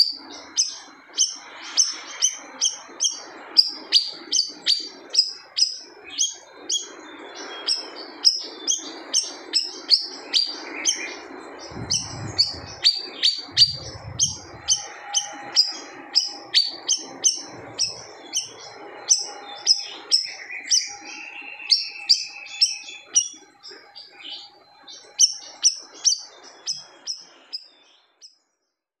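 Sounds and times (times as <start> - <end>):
bird chirping sharply: 0.0 - 28.2
low rumbles: 11.6 - 16.2.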